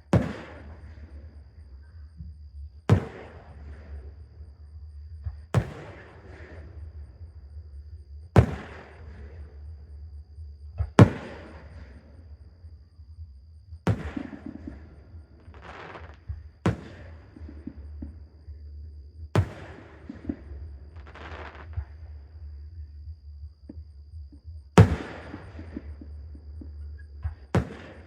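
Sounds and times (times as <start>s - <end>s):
fireworks booming: 0.0s - 1.4s, 2.8s - 4.1s, 5.3s - 7.2s, 8.3s - 9.5s, 10.8s - 12.1s, 13.8s - 18.3s, 19.3s - 22.1s, 24.8s - 28.0s
fireworks crackling: 15.5s - 17.2s, 21.0s - 21.7s.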